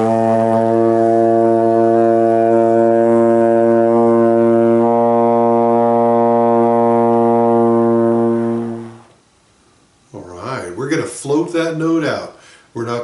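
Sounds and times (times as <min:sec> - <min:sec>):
trombone holding low note: 0:00.0 - 0:09.1.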